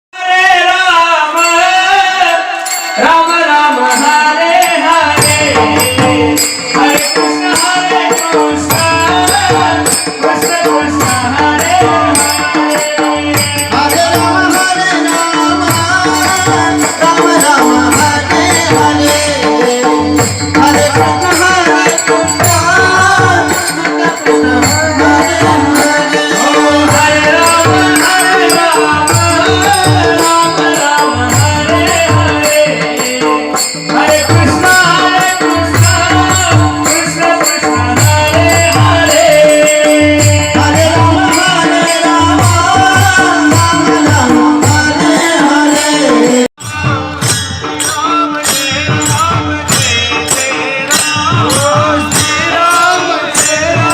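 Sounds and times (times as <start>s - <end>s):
solo voice singing: 0.2s - 53.9s.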